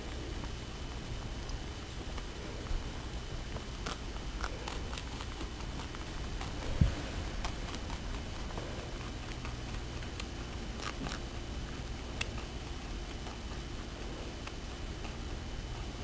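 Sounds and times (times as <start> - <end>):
rabbit chewing parsley: 0.0 - 16.0
low thump: 6.6 - 8.4.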